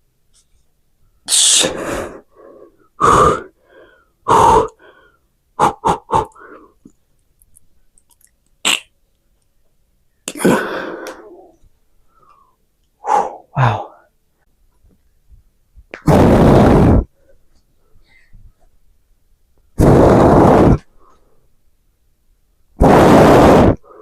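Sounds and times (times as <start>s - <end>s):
man breathing forcefully: 1.4s - 6.8s, 10.4s - 11.5s, 13.0s - 14.0s
man grunting with effort: 5.6s - 6.4s, 13.1s - 14.0s.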